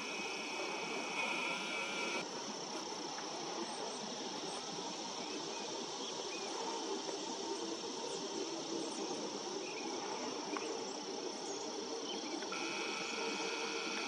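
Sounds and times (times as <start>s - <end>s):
high-pitched insect drone: 0.0s - 2.5s, 11.4s - 14.0s.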